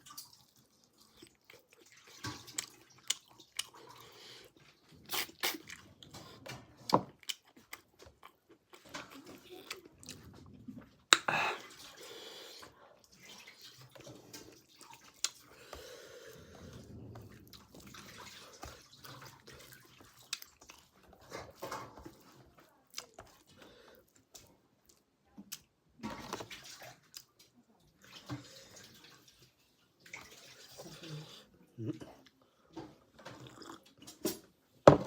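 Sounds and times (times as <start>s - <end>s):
person chewing wetly: 0.0s - 12.6s, 13.2s - 25.7s, 33.2s - 34.4s.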